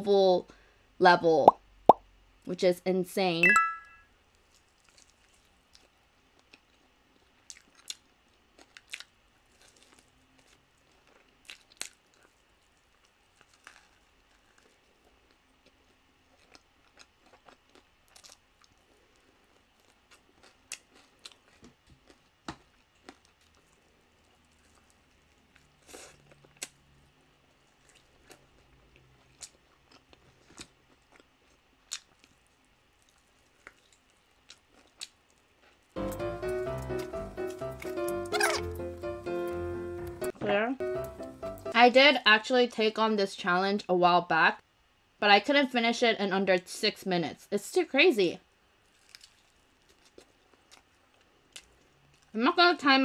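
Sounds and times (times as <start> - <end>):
chewing chicken wings: 4.4 - 26.9, 27.5 - 40.3, 48.9 - 52.4.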